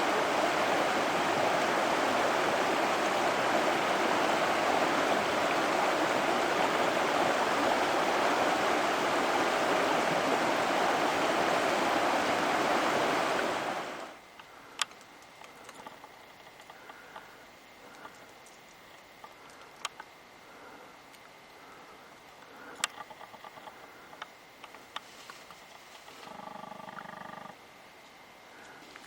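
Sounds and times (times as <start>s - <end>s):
stream flowing over rocks: 0.0s - 14.3s
faint ticks: 14.3s - 20.1s, 22.3s - 29.0s.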